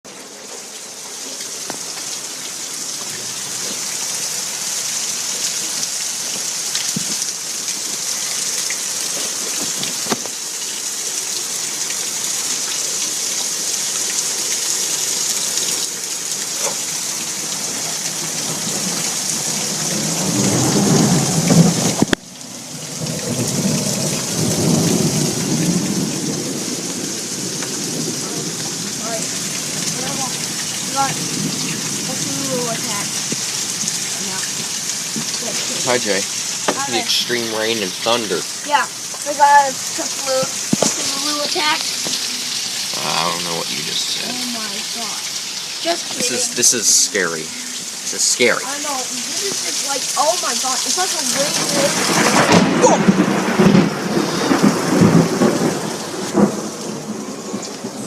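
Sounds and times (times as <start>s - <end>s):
heavy rain falling: 0.0s - 58.0s
thunder rumbling: 18.2s - 42.4s, 50.8s - 58.0s.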